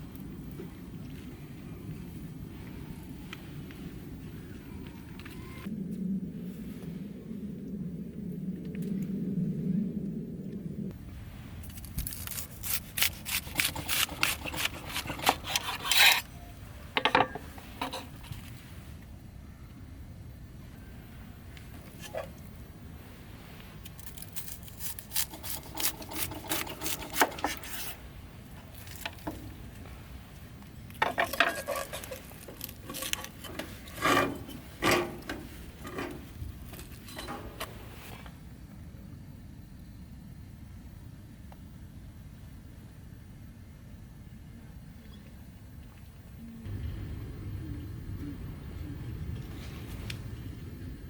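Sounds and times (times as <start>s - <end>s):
short rasping scrapes: 12.0s - 16.3s.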